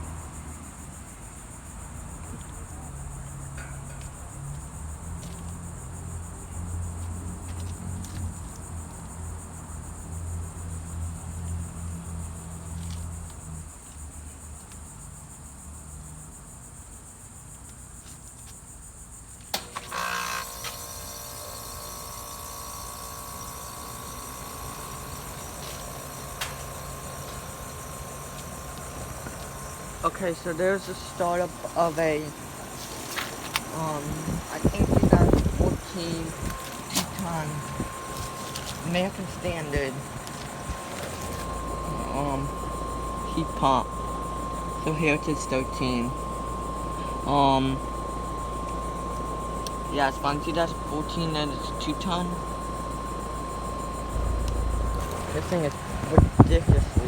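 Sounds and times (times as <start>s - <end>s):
high-pitched insect chorus: 0.0s - 57.0s
heat pump click: 19.5s - 57.0s
heat pump humming: 19.5s - 57.0s.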